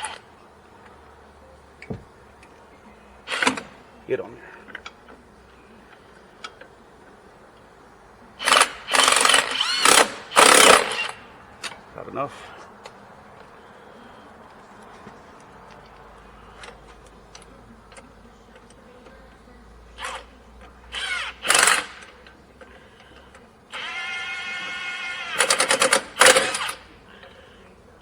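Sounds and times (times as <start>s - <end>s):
impact wrench whining and hammering: 1.8s - 2.2s, 3.3s - 3.8s, 8.4s - 11.9s, 20.9s - 22.3s, 23.7s - 26.9s.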